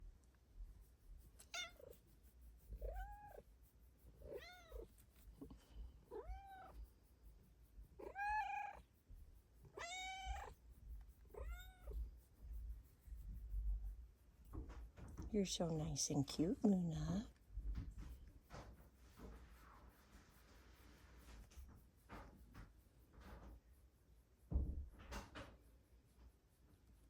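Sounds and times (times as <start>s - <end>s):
cat meowing: 1.5s - 2.0s, 6.1s - 6.8s, 8.0s - 8.8s, 9.7s - 10.6s, 11.3s - 12.0s.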